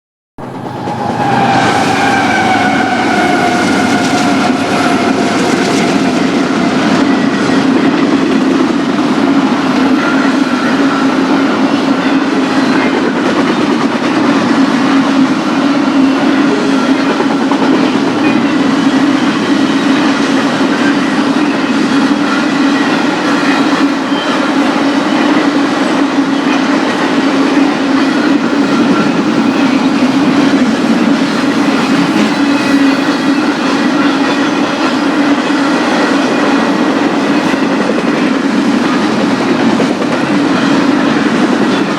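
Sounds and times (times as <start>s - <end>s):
pitched tones sliding down: 0.4s - 7.6s
freight train rumble and clatter: 0.4s - 41.9s.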